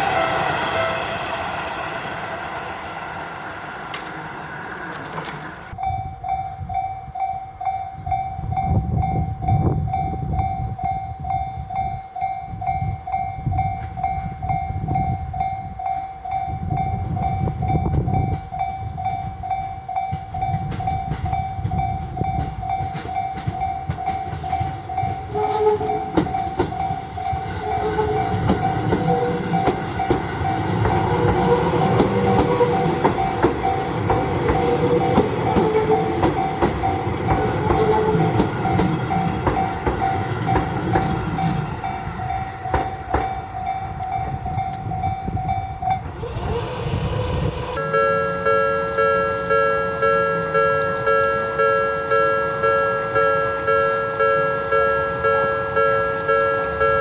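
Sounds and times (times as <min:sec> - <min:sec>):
electric train rumbling past: 0:00.0 - 0:57.0
wheels clattering over rail joints: 0:01.4 - 0:05.8, 0:20.0 - 0:57.0
level crossing bell ringing: 0:47.8 - 0:57.0.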